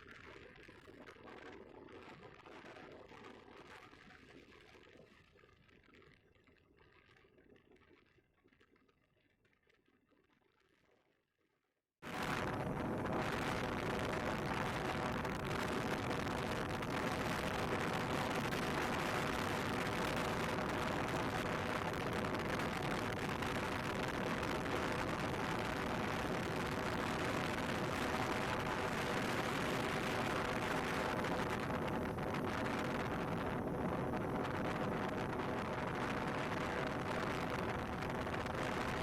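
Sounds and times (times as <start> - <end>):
wind buffeting microphone: 12.1 - 39.0.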